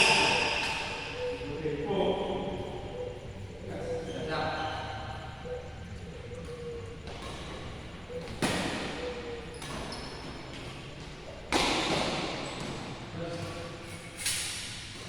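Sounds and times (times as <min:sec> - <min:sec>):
shoe squeaks: 0:00.0 - 0:01.8, 0:02.6 - 0:05.7, 0:06.4 - 0:14.7
racket hitting shuttlecock: 0:08.2 - 0:09.0, 0:09.6 - 0:13.6.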